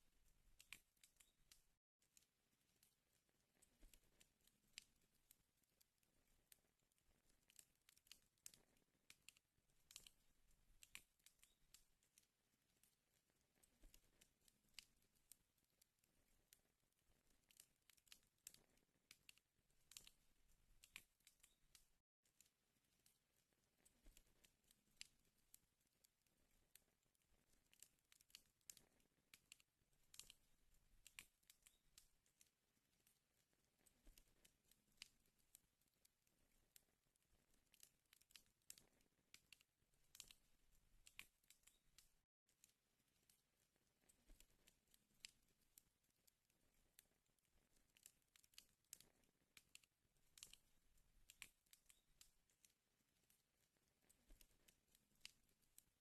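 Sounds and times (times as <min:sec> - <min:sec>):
wood fire crackling and popping: 0:06.6 - 0:22.0, 0:23.0 - 0:36.0, 0:36.7 - 0:42.2, 0:47.0 - 0:55.9.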